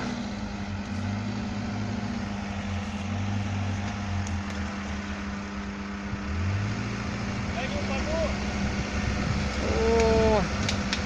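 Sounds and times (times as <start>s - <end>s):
vehicle engine idling low: 0.0s - 11.0s.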